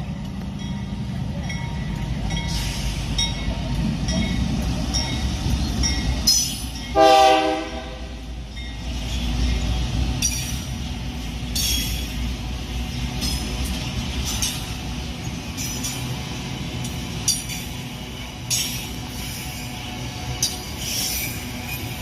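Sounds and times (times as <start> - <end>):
train wheels clicking: 0.0 - 7.8, 8.4 - 22.0
freight train rumbling past: 0.0 - 22.0
train horn blast: 7.0 - 8.3.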